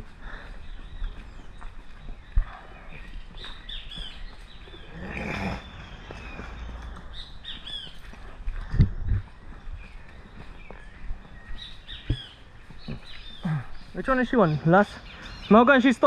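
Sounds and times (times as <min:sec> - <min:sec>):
birds chirping: 0:00.0 - 0:16.0
sharp low thumps: 0:08.6 - 0:09.4.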